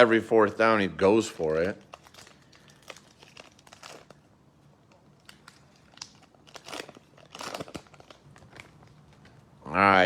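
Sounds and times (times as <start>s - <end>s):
cards and foil wrapper rustling: 1.0s - 9.5s.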